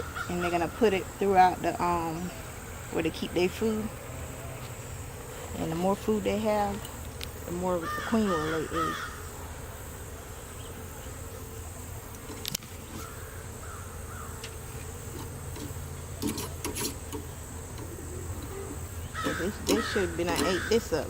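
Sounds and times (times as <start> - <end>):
honeybees buzzing: 0.0 - 21.0
sharp clicks and knocks: 14.4 - 18.5.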